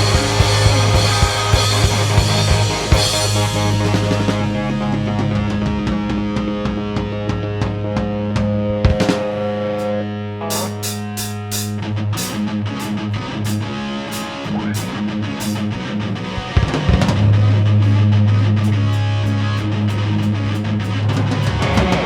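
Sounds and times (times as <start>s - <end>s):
low bass note: 0.0s - 8.8s
drum kit: 0.0s - 22.0s
electric guitar: 0.0s - 22.0s.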